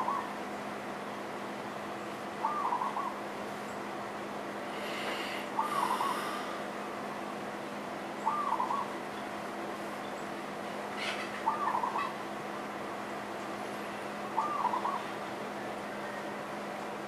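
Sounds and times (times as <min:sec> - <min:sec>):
faint steady hum: 0:00.0 - 0:17.0
bird short call: 0:05.2 - 0:06.6.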